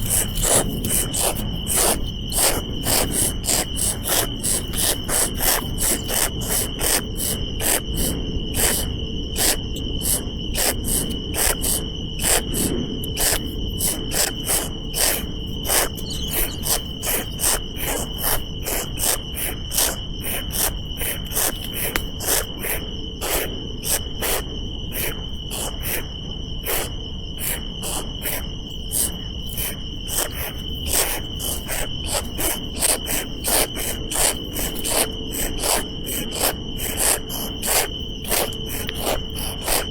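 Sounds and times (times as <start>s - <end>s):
insects chirping: 0.0s - 39.9s
steady high-pitched hum: 0.0s - 39.9s.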